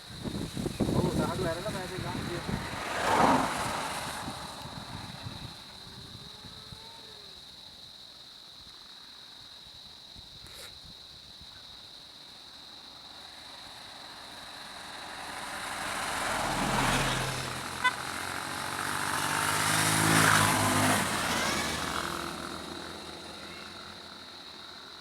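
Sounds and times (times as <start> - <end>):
vehicles driving past: 0.1 - 6.3, 12.9 - 25.0.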